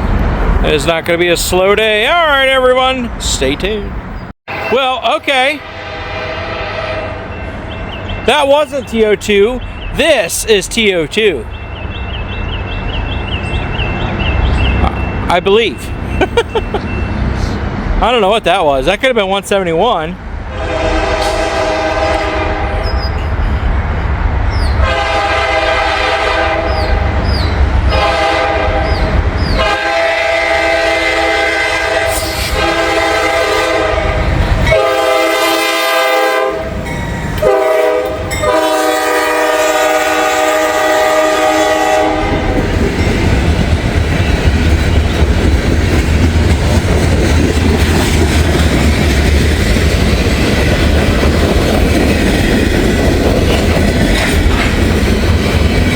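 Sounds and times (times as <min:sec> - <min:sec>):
train rumble and clickety-clack: 0:00.0 - 0:04.3, 0:07.3 - 0:55.9
train air horn blasts: 0:05.5 - 0:07.4, 0:20.5 - 0:23.1, 0:24.8 - 0:27.2, 0:27.9 - 0:42.6.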